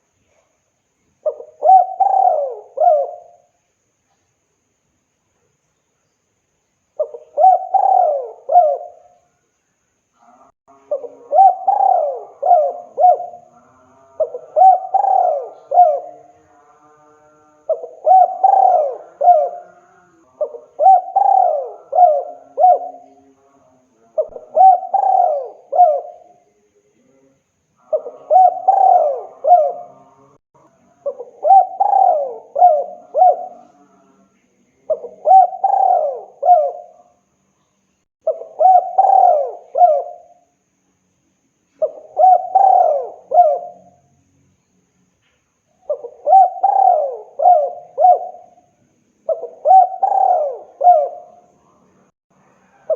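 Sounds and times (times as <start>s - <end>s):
dove cooing: 1.2s - 3.5s, 7.0s - 9.2s, 10.8s - 16.3s, 17.7s - 23.3s, 24.2s - 26.4s, 27.8s - 30.4s, 31.0s - 33.9s, 34.9s - 37.1s, 38.2s - 40.4s, 41.8s - 44.0s, 45.8s - 48.7s, 49.3s - 51.5s, 52.7s - 52.9s.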